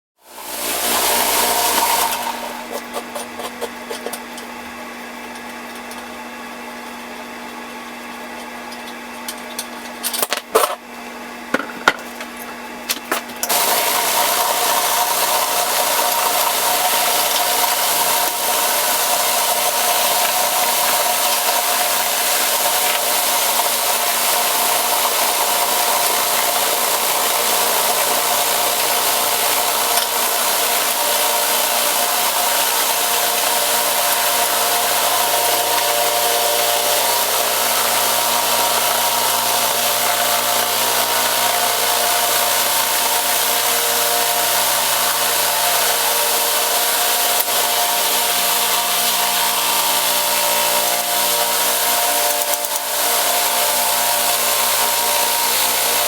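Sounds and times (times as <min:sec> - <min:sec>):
power tool rushing whine: 0:00.2 - 0:03.0, 0:13.4 - 0:56.0
machinery humming: 0:00.3 - 0:02.8, 0:11.6 - 0:56.0
clicks and knocks: 0:11.5 - 0:13.3.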